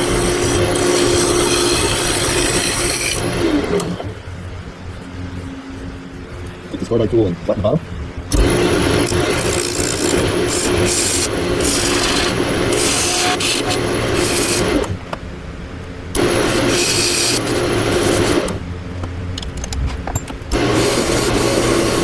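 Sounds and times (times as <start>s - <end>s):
lathe humming: 8.3s - 15.0s, 20.5s - 22.0s.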